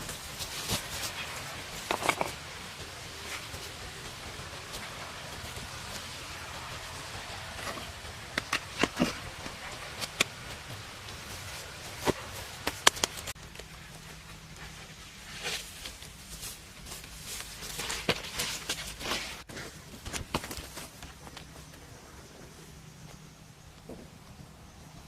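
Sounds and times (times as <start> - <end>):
steady hiss: 0.0 - 25.0
sharp clicks and knocks: 12.0 - 13.7.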